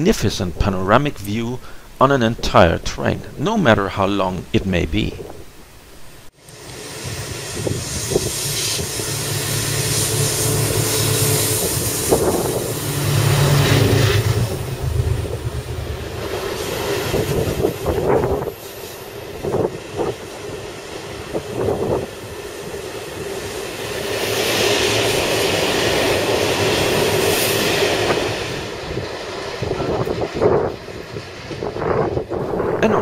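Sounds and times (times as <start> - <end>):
diesel locomotive engine drone: 6.4 - 33.0.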